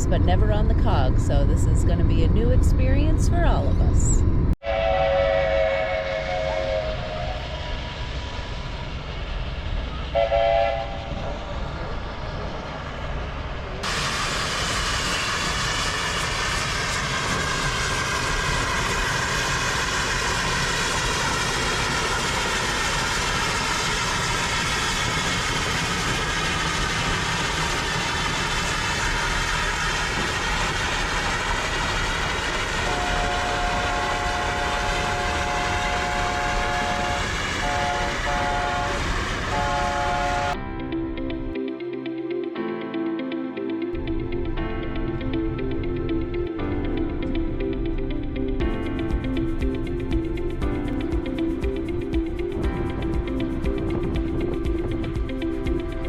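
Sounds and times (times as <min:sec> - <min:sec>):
train running: 0:00.0 - 0:41.6, 0:43.9 - 0:56.0
train chime horn blasts: 0:04.6 - 0:07.6, 0:10.1 - 0:11.2, 0:32.7 - 0:40.6.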